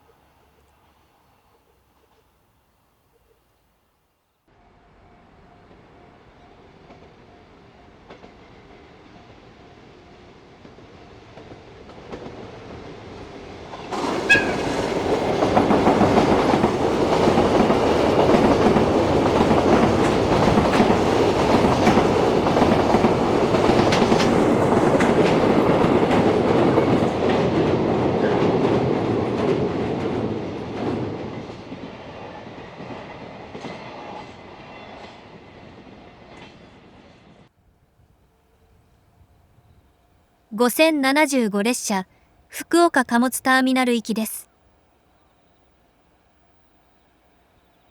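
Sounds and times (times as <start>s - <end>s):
freight train passing: 4.9s - 30.5s.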